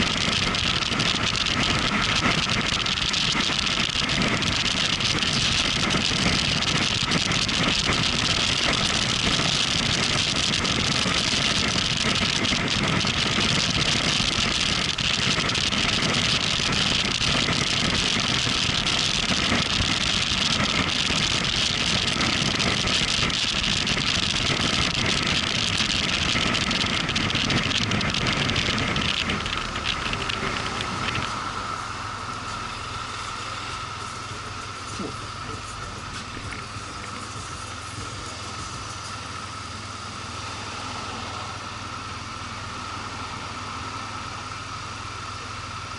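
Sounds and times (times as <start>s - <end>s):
wind noise: 0.0s - 31.6s
motorcycle engine: 0.0s - 45.9s.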